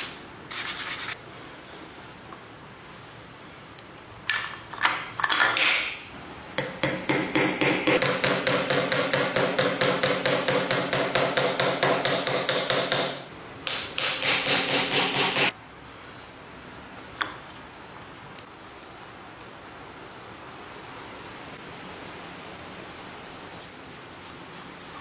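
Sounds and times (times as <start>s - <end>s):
rapid hammering strikes: 6.6s - 15.6s.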